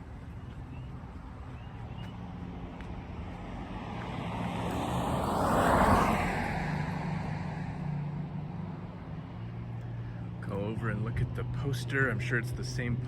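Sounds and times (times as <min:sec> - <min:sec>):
car passing by: 0:01.7 - 0:10.4.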